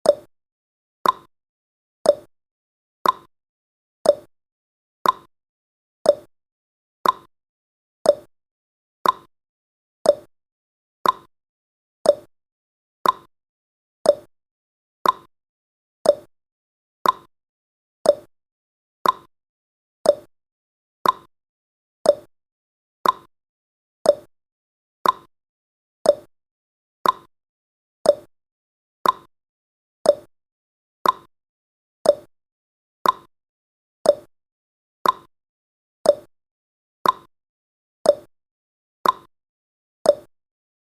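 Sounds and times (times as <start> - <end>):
clock ticking: 3.0 - 3.3, 5.0 - 5.3, 7.0 - 7.3, 9.0 - 9.3, 11.0 - 11.3, 13.0 - 13.3, 15.0 - 15.3, 16.1 - 16.3, 17.0 - 17.3, 18.1 - 18.3, 19.0 - 19.3, 20.1 - 20.3, 21.0 - 21.3, 22.1 - 22.3, 23.0 - 23.3, 24.1 - 24.3, 25.0 - 25.3, 26.1 - 26.3, 27.0 - 27.3, 29.0 - 29.3, 30.1 - 30.3, 31.0 - 31.3, 32.1 - 32.3, 33.0 - 33.3, 34.1 - 34.3, 35.0 - 35.3, 36.1 - 36.3, 37.0 - 37.3, 38.1 - 38.3, 39.0 - 39.3, 40.1 - 40.3.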